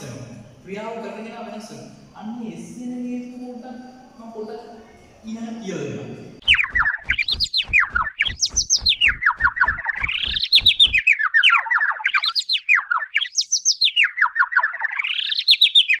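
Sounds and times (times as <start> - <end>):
bird chirping trill: 3.2 - 16.0
regular low thump: 6.4 - 11.0.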